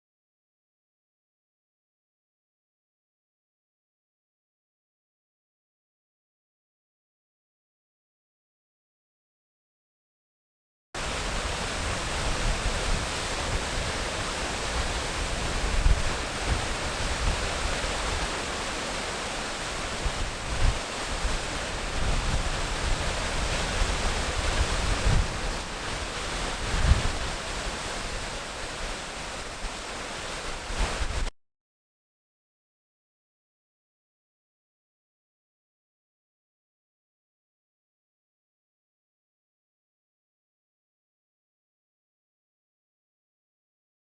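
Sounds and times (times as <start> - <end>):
waterfall rushing: 11.0 - 31.3.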